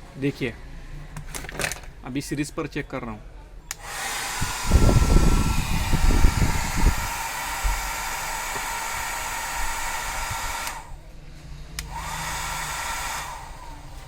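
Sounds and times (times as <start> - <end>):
hair dryer running: 3.7 - 11.0, 11.8 - 14.0.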